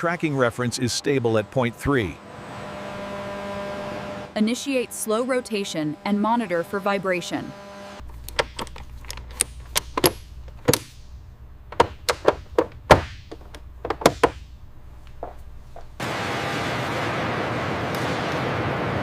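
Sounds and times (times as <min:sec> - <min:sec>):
sharp knocks and taps: 0:11.7 - 0:15.9.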